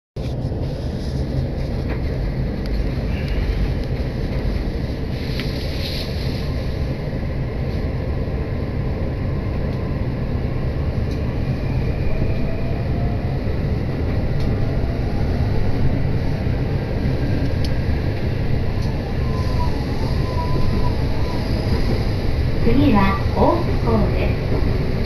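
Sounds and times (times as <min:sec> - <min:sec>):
train wheels rumbling on rails: 0:00.2 - 0:25.0.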